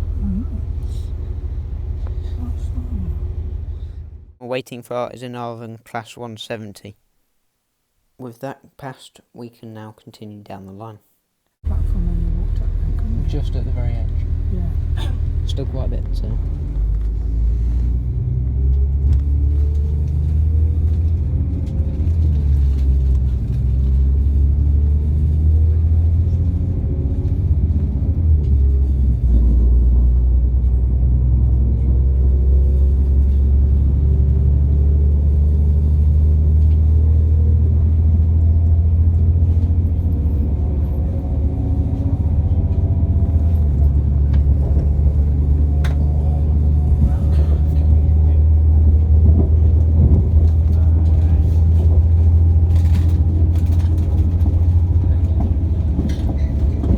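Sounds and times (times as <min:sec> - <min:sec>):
diesel train rumble: 0:00.0 - 0:04.4, 0:11.6 - 0:56.9.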